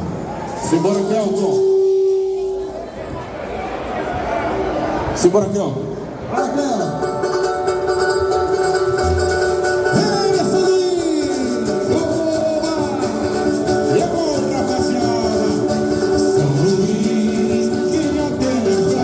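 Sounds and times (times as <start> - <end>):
strummed cavaquinho and guitar: 6.4 - 19.0
person singing: 9.3 - 19.0.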